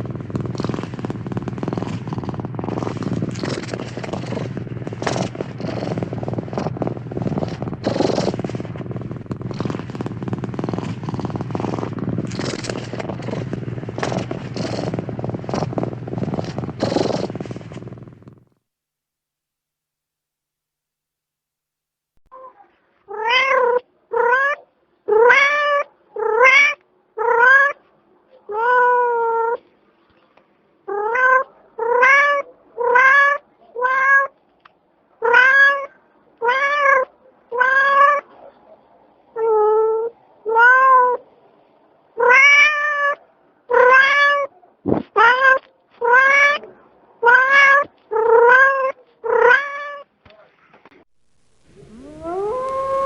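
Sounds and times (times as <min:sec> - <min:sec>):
cat meowing: 0:23.1 - 0:27.8, 0:28.5 - 0:29.6, 0:30.9 - 0:34.3, 0:35.2 - 0:38.3, 0:39.4 - 0:41.2, 0:42.2 - 0:44.5, 0:45.2 - 0:50.1, 0:51.8 - 0:53.0.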